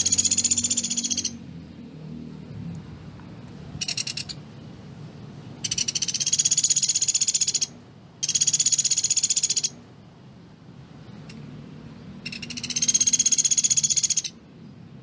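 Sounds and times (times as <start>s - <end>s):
woodpecker trilling: 0.0s - 1.4s, 3.8s - 4.4s, 5.6s - 9.8s, 12.2s - 14.4s.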